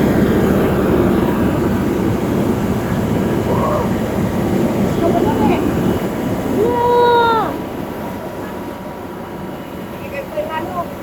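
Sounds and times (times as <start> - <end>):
heavy truck engine running: 0.0 - 6.4.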